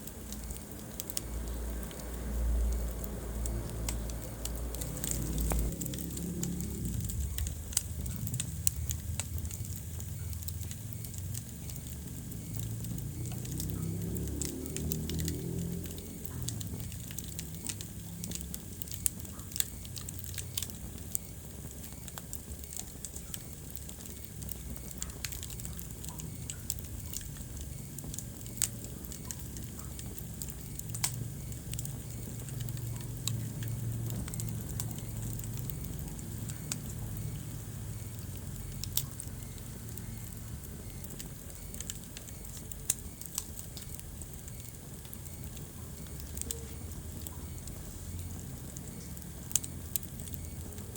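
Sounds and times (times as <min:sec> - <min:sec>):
fire crackling: 0:00.0 - 0:50.9
flames rumbling: 0:00.0 - 0:50.9
logs popping: 0:00.0 - 0:50.9.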